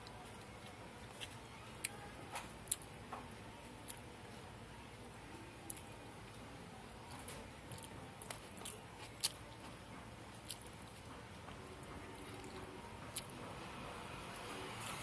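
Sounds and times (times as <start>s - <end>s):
person chewing food: 7.1s - 13.4s.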